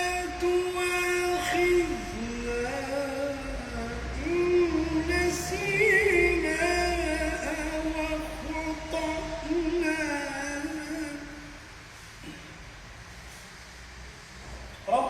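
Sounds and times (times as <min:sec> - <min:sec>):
man chanting recitation: 0:00.0 - 0:11.7.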